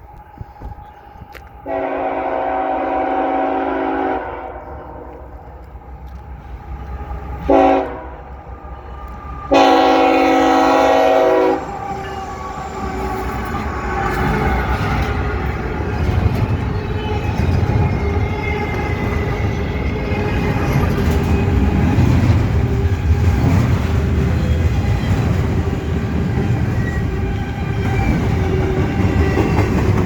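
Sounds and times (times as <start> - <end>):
low rumble of train: 0.0 - 30.0
locomotive air horn blasts: 1.6 - 5.3, 7.4 - 8.3, 9.5 - 13.1.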